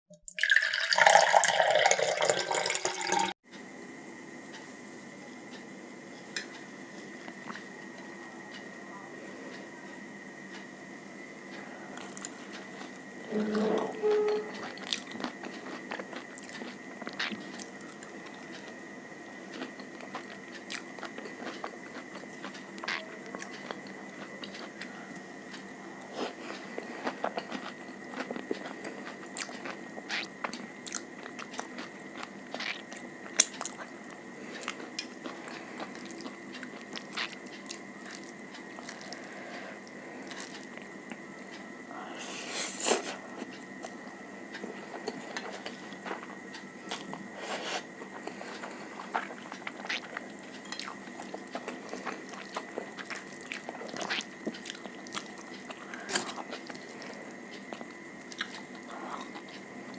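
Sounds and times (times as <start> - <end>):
faint high whine: 3.6 - 59.9
biting and chewing: 14.1 - 18.8, 19.4 - 41.6, 43.2 - 59.9.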